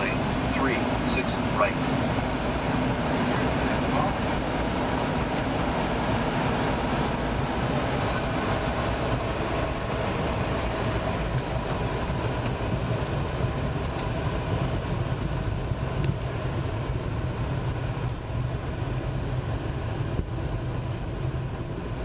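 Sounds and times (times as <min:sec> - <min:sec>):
vehicle rumble in motion: 0:00.0 - 0:22.0.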